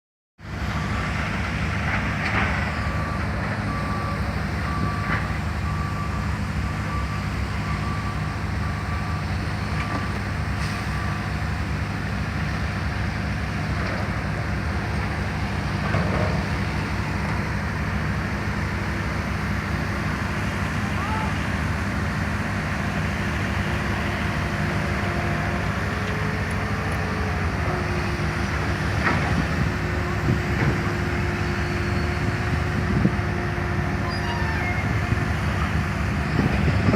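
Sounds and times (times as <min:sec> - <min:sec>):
heavy machinery running: 0:00.4 - 0:36.9
reversing alarm beeping: 0:02.6 - 0:11.6.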